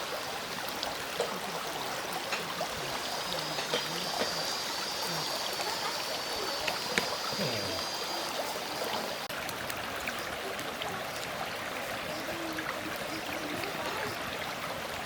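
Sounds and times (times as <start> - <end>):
stream water flowing: 0.0 - 15.0
small ticks: 3.6 - 7.9.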